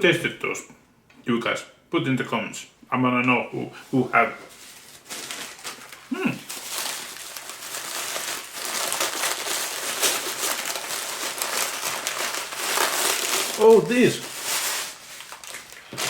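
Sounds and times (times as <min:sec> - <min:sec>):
candy packaging crinkling: 0:04.6 - 0:16.0.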